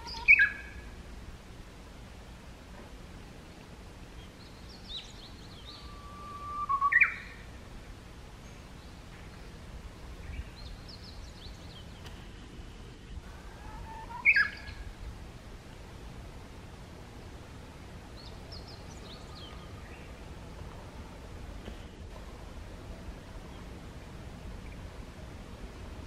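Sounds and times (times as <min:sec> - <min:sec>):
songbird whistling phrase: 0:04.9 - 0:07.4, 0:13.7 - 0:14.8.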